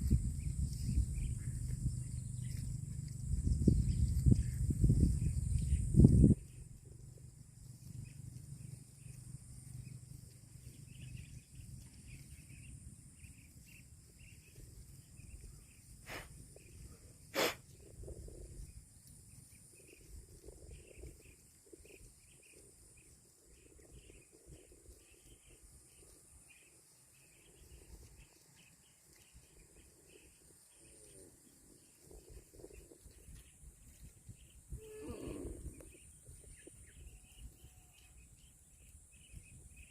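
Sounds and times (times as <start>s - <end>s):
steady high hiss: 17.3s - 17.6s.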